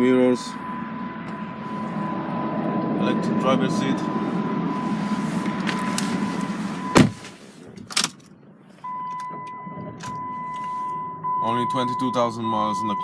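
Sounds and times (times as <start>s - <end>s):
steady high electronic beep: 0.0s - 7.0s, 8.9s - 13.0s.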